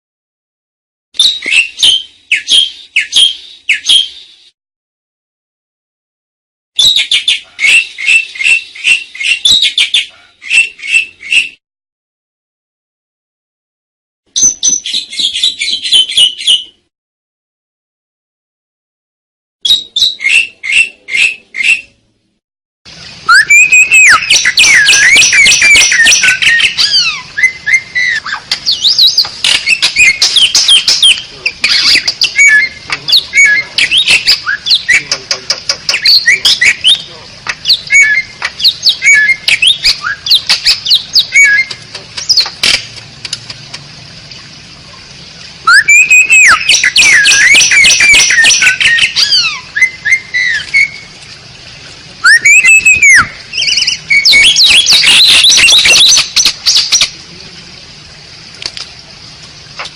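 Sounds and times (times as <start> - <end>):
starling singing whistles and rattles: 1.2 - 4.4, 23.3 - 35.2, 45.7 - 51.0, 52.2 - 57.0.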